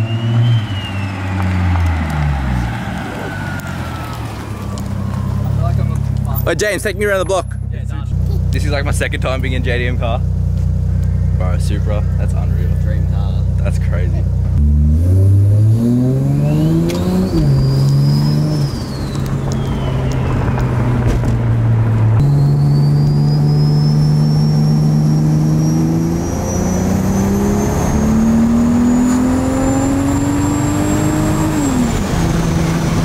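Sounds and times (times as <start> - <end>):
car engine revving through gears: 8.1 - 33.0.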